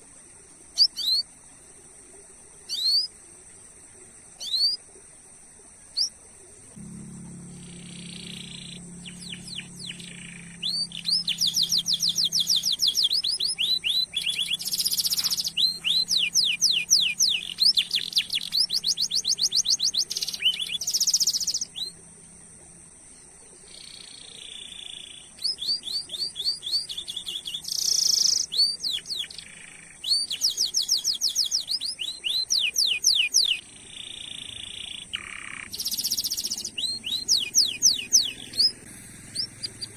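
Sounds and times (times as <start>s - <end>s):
canary singing trills: 0.8s - 1.3s, 2.7s - 3.2s, 4.4s - 4.8s, 5.9s - 22.4s, 23.1s - 39.9s
steady high-pitched tone: 6.7s - 22.2s.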